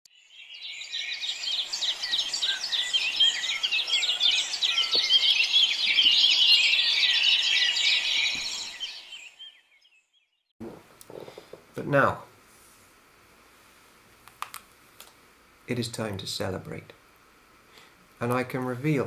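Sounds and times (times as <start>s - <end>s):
small birds chirping and trilling: 0.1s - 10.5s.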